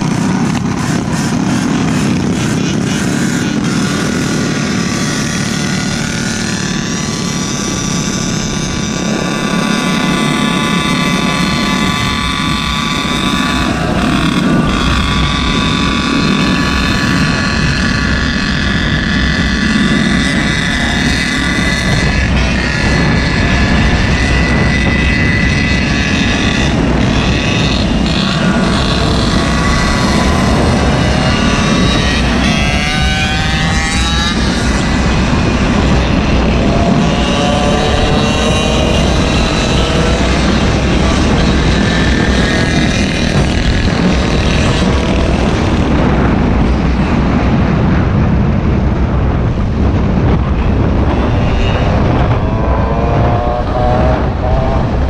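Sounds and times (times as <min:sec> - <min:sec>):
small engine running: 0:00.0 - 0:48.1
low rushing noise: 0:00.0 - 0:55.0.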